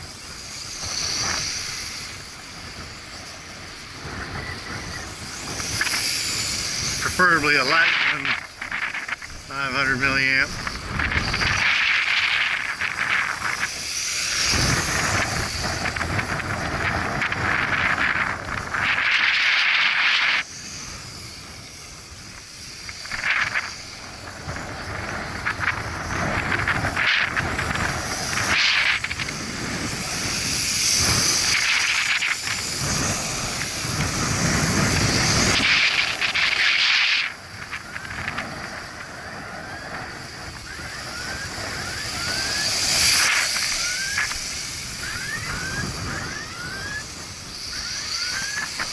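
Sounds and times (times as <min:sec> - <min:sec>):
small electric motors whining: 0:00.0 - 0:48.9
wind buffeting the microphone: 0:00.0 - 0:48.9.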